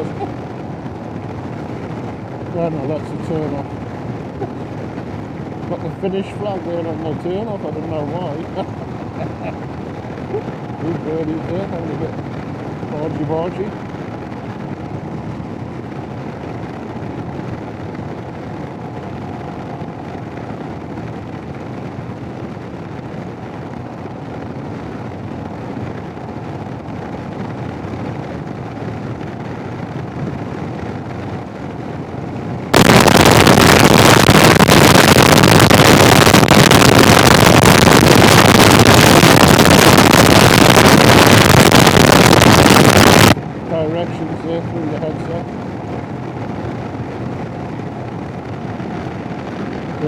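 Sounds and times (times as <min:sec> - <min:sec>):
loud harsh wind roar: 0:00.0 - 0:50.0
muffled motorcycle riding noise: 0:00.0 - 0:50.0.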